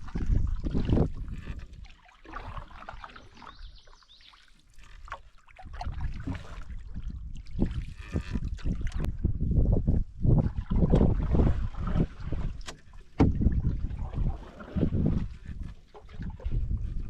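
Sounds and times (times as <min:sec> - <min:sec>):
wind gusts on microphone: 0:00.0 - 0:01.8, 0:05.8 - 0:12.6, 0:13.2 - 0:17.0
paddle dipping in water: 0:00.0 - 0:17.0.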